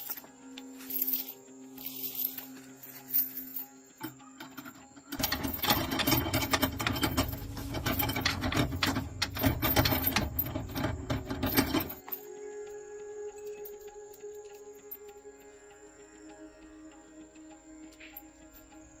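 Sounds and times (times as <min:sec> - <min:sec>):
machine rattling rapidly: 0:04.5 - 0:12.0.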